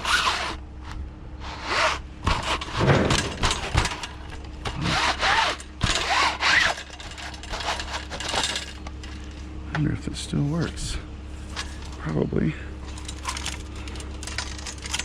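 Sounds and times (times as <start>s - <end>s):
items rubbing and scraping: 0.0s - 9.6s
steady low hum: 0.0s - 15.0s
knocks and clatters: 2.2s - 9.9s.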